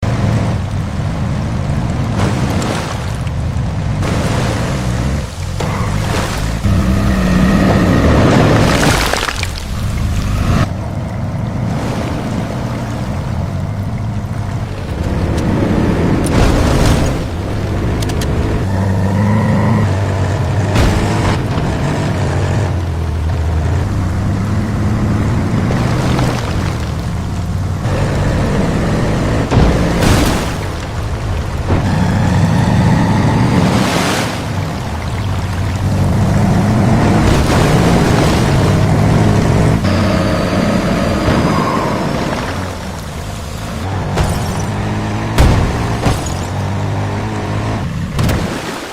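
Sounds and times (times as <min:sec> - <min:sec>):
heavy truck engine running: 0:09.6 - 0:33.6.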